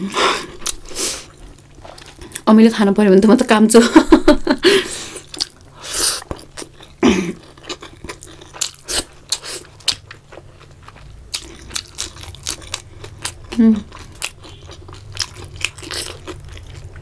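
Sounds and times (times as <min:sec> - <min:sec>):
chewing food: 0:00.5 - 0:02.5, 0:05.2 - 0:17.0
crunching fried food: 0:05.2 - 0:17.0.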